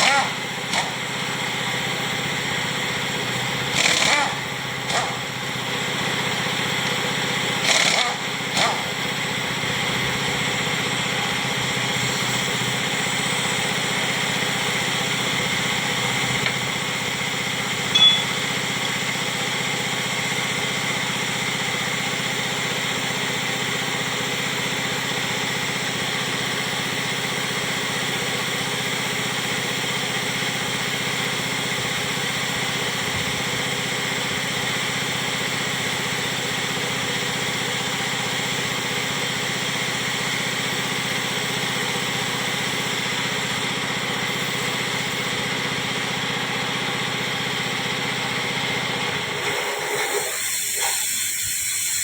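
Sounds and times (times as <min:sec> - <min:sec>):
small engine running: 0:00.0 - 0:52.0
sharp metallic clinks: 0:17.9 - 0:18.4.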